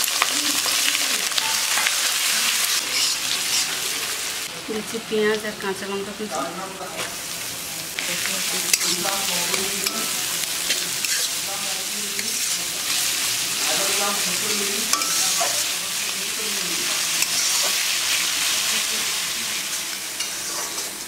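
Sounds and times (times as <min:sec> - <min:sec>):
onion sizzling in hot fat: 0:00.0 - 0:21.0
spatula clicking and scraping pan: 0:01.4 - 0:03.8, 0:08.6 - 0:11.4, 0:14.4 - 0:15.8, 0:17.2 - 0:17.8, 0:20.2 - 0:21.0.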